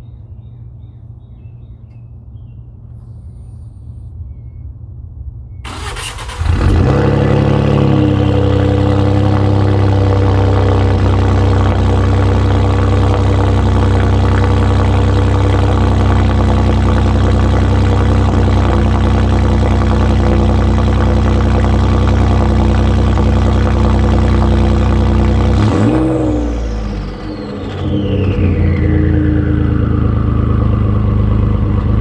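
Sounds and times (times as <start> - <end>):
loud truck exhaust drone: 4.9 - 32.0.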